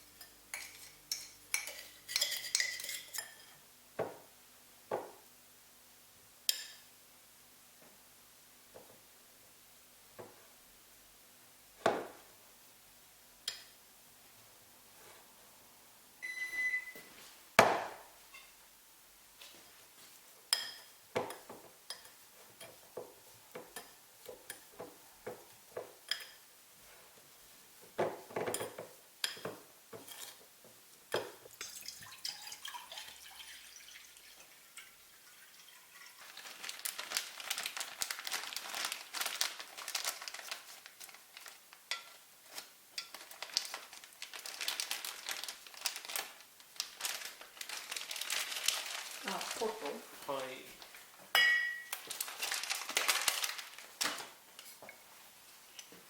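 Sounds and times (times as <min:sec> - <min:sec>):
dishes and utensils clinking: 0:00.1 - 0:03.6, 0:28.3 - 0:30.4, 0:51.3 - 0:52.0
crackling rustle of packaging: 0:36.0 - 0:51.2, 0:51.9 - 0:56.0.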